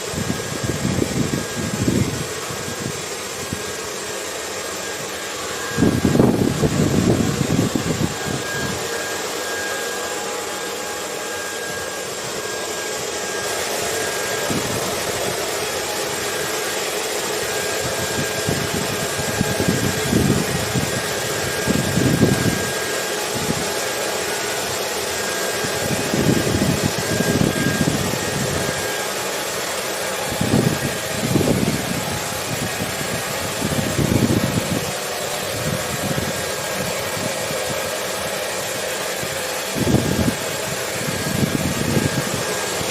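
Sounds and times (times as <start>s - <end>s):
hair dryer blowing: 0.0s - 42.9s
wind gusts: 5.0s - 9.6s.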